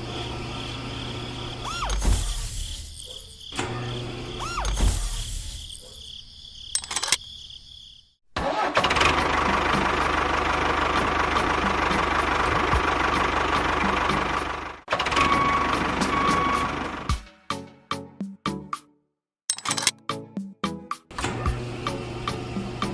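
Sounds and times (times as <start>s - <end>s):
small motor running: 0.0s - 5.9s.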